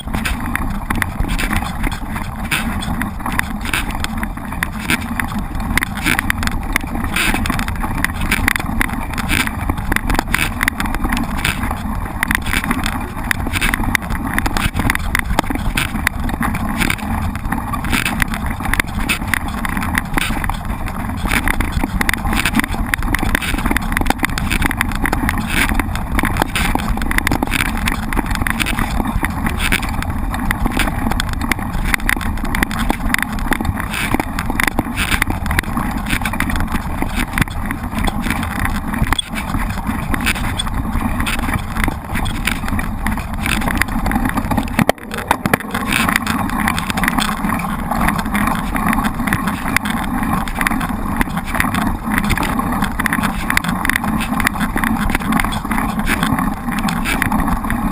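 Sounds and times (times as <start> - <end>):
bike rattling and jolting: 0.0 - 57.9
wind on microphone: 0.0 - 57.9
low rumble: 40.7 - 52.1.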